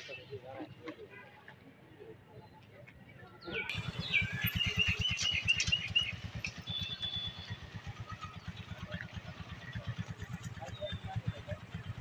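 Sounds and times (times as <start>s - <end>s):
small engine running: 3.7s - 12.0s.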